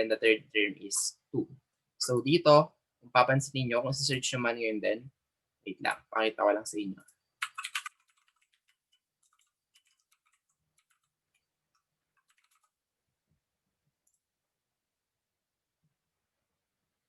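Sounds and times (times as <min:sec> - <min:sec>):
keyboard key clicks: 0:07.4 - 0:08.3.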